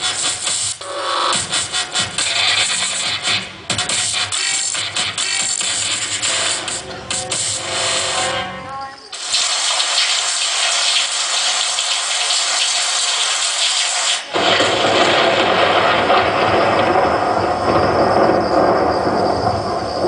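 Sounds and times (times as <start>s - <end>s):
steady hiss of rain: 9.1s - 20.0s
deep thunder rumble: 14.3s - 20.0s.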